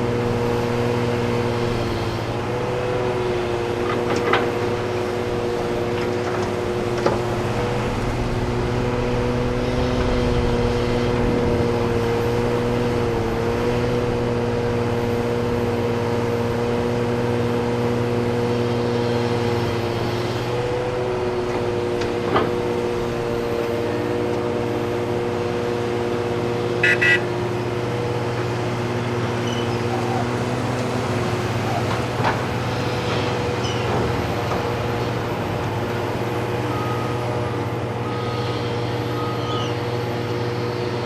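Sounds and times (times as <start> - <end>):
heavy diesel machinery droning: 0.0 - 41.0
short horn toots: 26.8 - 27.3.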